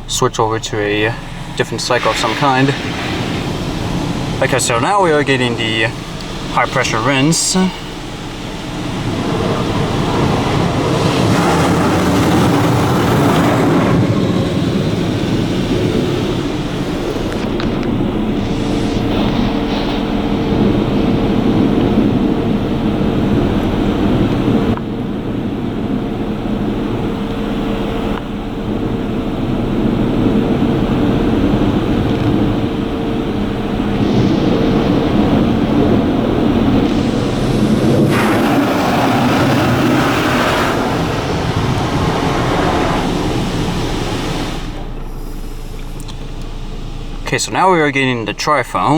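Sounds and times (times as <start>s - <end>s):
constant hum: 0.0s - 48.9s
high-pressure water spray hiss: 1.0s - 22.6s, 33.4s - 46.7s.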